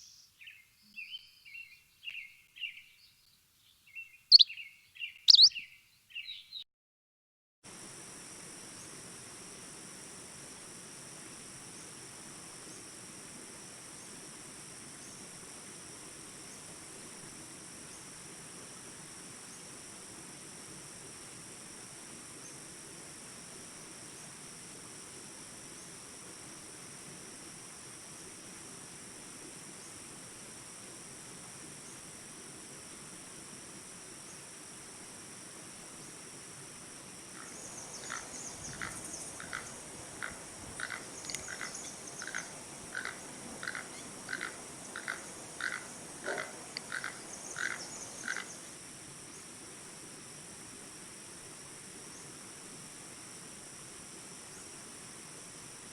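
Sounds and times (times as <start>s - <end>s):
high-pitched insect hum: 4.3s - 5.6s, 7.7s - 55.9s
toucan calling: 4.3s - 6.4s, 37.4s - 48.7s.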